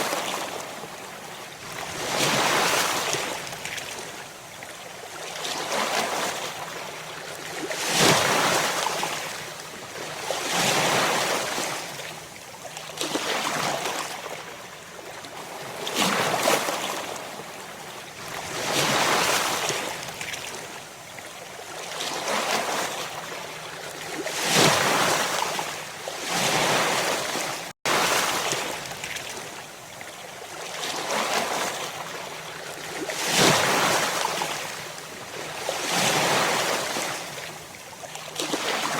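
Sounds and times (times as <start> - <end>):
waves breaking: 24.1 - 29.7, 30.6 - 38.9.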